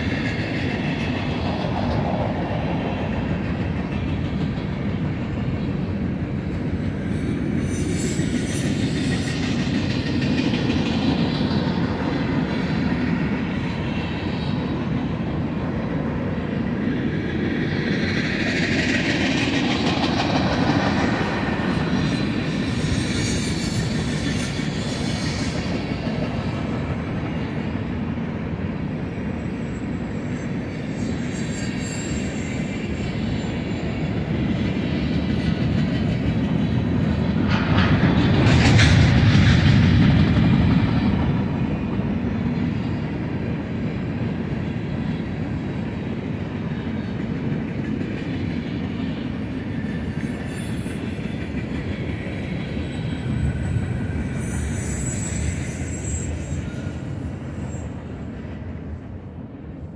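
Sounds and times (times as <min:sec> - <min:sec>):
train wheels rumbling on rails: 0:00.0 - 0:59.9
high-pitched wheel squeal: 0:07.1 - 0:09.9, 0:29.4 - 0:34.1, 0:49.7 - 0:58.4.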